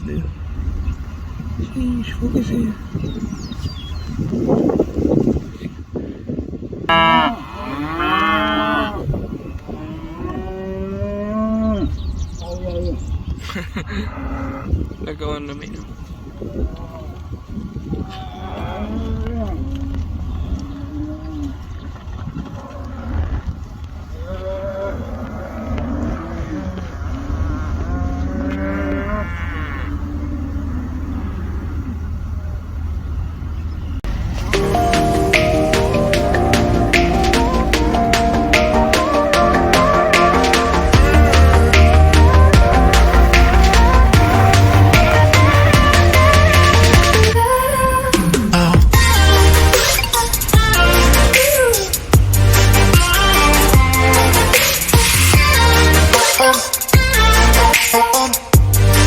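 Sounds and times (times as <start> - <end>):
vehicle engine rumble: 0.0 - 10.1, 11.6 - 56.2
cattle mooing: 6.9 - 12.0, 14.1 - 14.8, 18.0 - 21.6, 24.1 - 32.2, 34.4 - 47.4
music: 34.4 - 47.4, 48.6 - 59.0.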